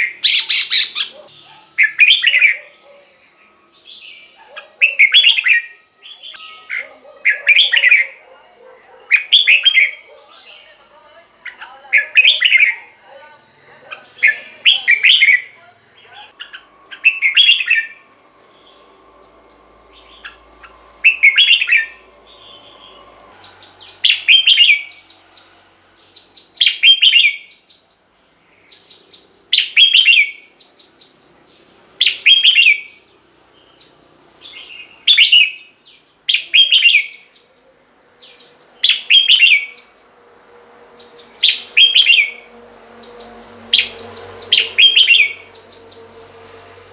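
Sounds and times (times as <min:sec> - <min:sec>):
bird singing short phrases: 0:00.0 - 0:08.2, 0:09.1 - 0:18.0, 0:19.9 - 0:25.2, 0:32.0 - 0:33.0, 0:33.8 - 0:37.4, 0:38.2 - 0:39.9, 0:41.0 - 0:42.4, 0:43.1 - 0:46.1.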